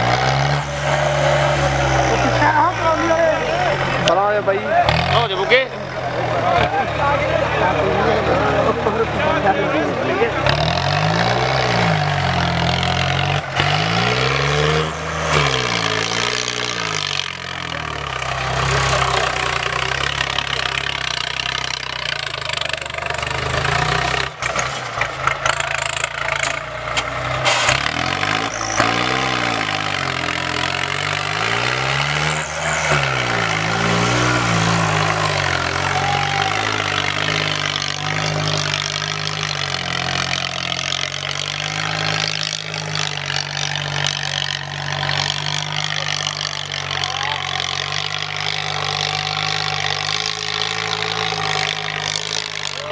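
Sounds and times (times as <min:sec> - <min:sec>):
tractor engine revving: 0:00.0 - 0:52.9.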